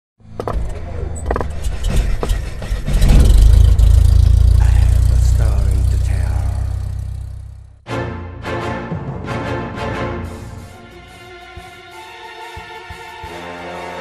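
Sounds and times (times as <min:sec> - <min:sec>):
deep rumble: 0:01.0 - 0:07.8.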